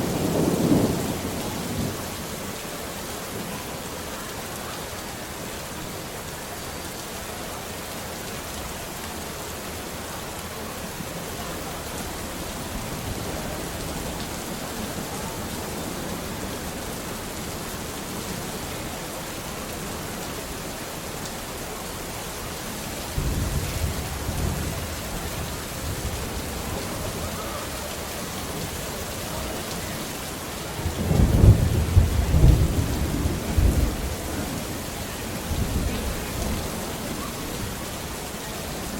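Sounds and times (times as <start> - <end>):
thunder rumbling: 0.0 - 2.2, 23.1 - 27.8, 30.7 - 37.8
steady rain falling: 0.0 - 38.9.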